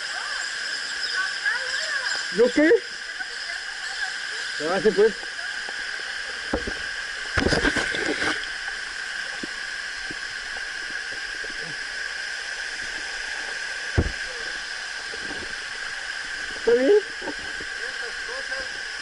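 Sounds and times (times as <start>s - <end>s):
thump: 13.9s - 14.2s.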